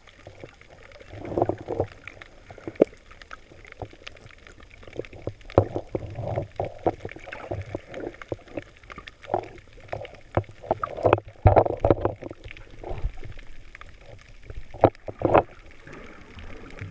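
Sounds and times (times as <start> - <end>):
muffled water sloshing and splashing: 0.0 - 16.9.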